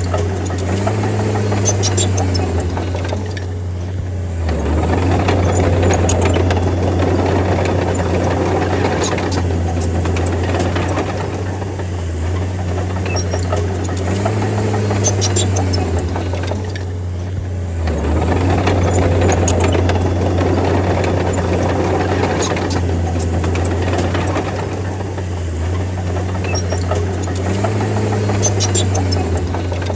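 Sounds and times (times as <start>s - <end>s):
bulldozer diesel engine: 0.0s - 29.9s
metallic rattles: 0.0s - 29.9s
sharp clicks: 0.0s - 29.9s.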